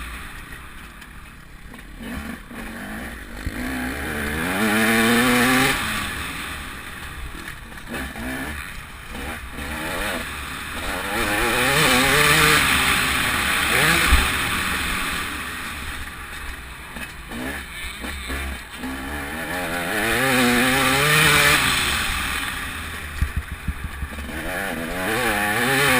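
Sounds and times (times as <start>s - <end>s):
motocross bike engine revving: 1.6s - 25.9s.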